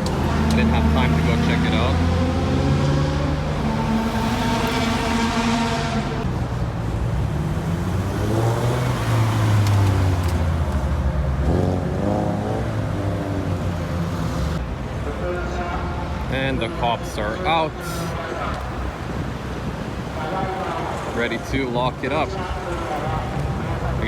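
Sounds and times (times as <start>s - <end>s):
car pulling away: 0.0s - 14.6s
cars rolling past slowly: 0.0s - 24.0s.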